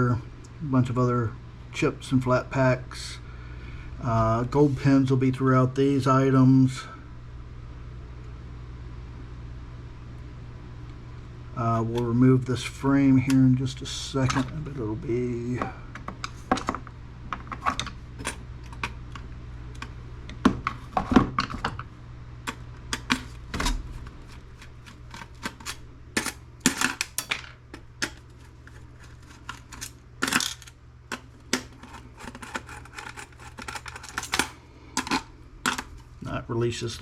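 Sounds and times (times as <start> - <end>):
screwdriver and screws clicking: 29.5 - 35.8.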